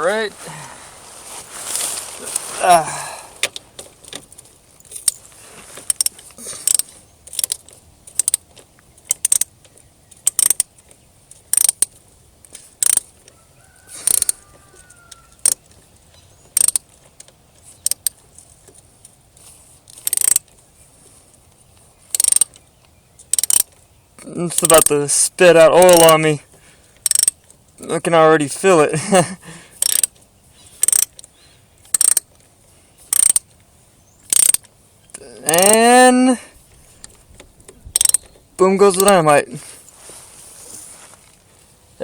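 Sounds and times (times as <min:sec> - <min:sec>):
ratchet wrench clicking: 0:04.8 - 0:05.2, 0:05.8 - 0:13.3, 0:13.9 - 0:15.8, 0:16.5 - 0:18.8, 0:19.4 - 0:20.6, 0:22.1 - 0:22.6, 0:23.2 - 0:23.8, 0:24.5 - 0:26.3, 0:27.0 - 0:27.6, 0:29.7 - 0:32.4, 0:33.0 - 0:33.6, 0:34.2 - 0:35.8, 0:37.9 - 0:39.2.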